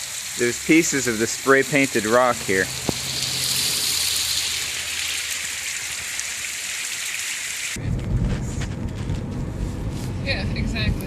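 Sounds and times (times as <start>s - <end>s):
waterfall rushing: 0.0s - 7.8s
low rumble: 7.8s - 11.0s.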